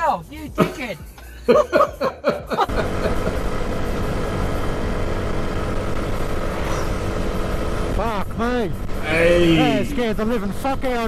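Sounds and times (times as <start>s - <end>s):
vehicle engine and road noise: 2.6s - 11.0s.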